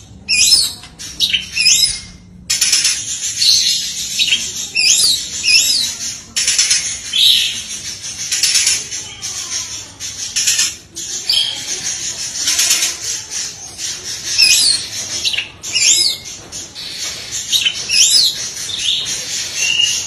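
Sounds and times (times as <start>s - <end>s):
bird song chatter and trills: 0.0s - 20.0s.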